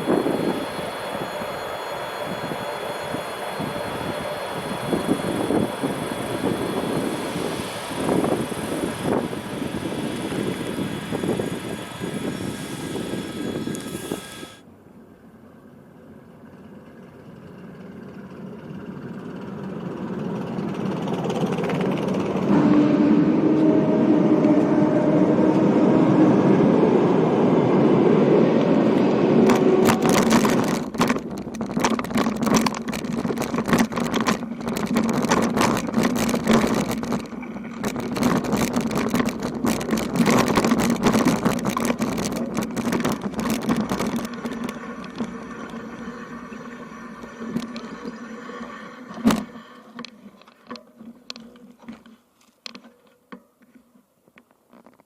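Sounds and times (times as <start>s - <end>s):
vehicle passing with droning hum: 14.5s - 31.0s
rapid irregular clatter: 29.5s - 53.8s.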